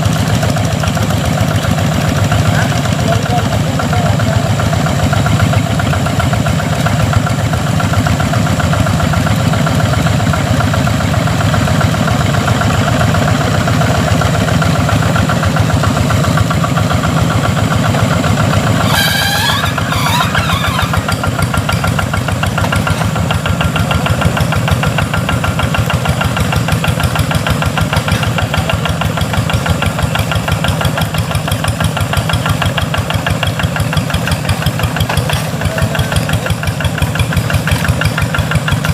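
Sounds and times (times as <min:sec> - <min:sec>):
tractor engine running: 0:00.0 - 0:38.9
wavering high-pitched squeal: 0:18.8 - 0:21.2.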